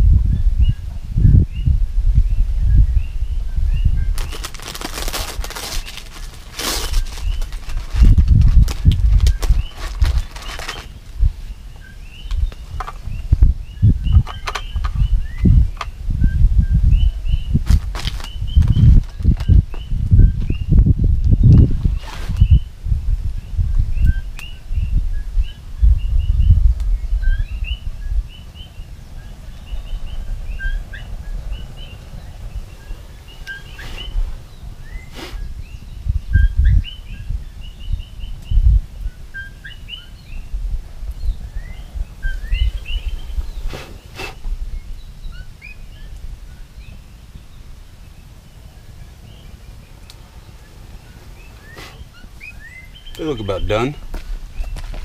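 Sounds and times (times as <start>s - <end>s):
low rumbling noise: 0.0s - 39.3s
small birds chirping: 0.2s - 55.0s.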